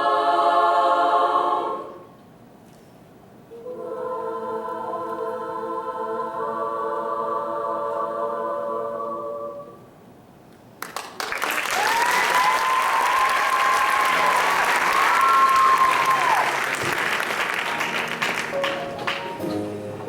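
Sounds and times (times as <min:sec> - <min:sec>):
choir singing a chord: 0:00.0 - 0:02.2, 0:03.5 - 0:09.9
audience applause and cheering: 0:10.8 - 0:19.6.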